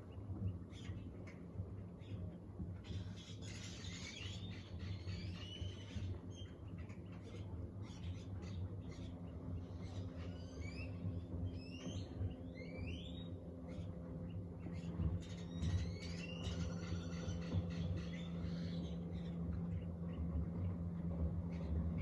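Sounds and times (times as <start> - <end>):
birds chirping: 0.0 - 22.0
low hum: 6.0 - 22.0.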